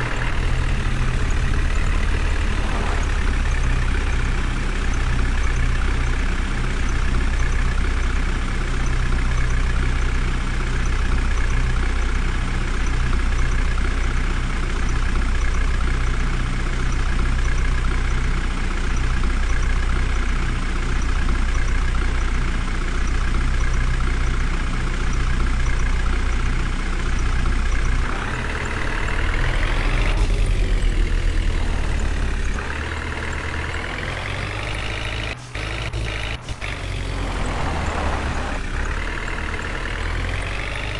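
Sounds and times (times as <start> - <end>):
heavy vehicle engine rumbling: 0.0 - 40.9.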